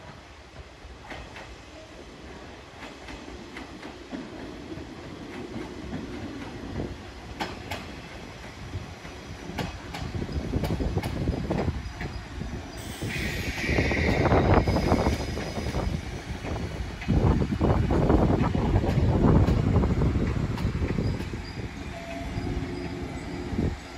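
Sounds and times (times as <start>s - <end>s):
electric train rumble: 0.0s - 23.9s
wheels clacking over rail joints: 2.8s - 12.4s
rushing noise: 12.8s - 23.9s.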